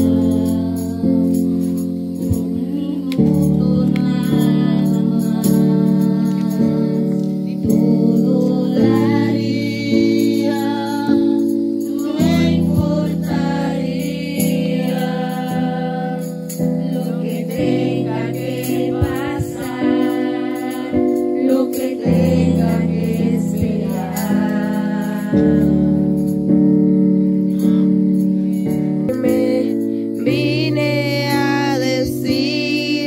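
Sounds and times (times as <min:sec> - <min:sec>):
congregation singing: 0:00.0 - 0:26.6, 0:27.6 - 0:33.0.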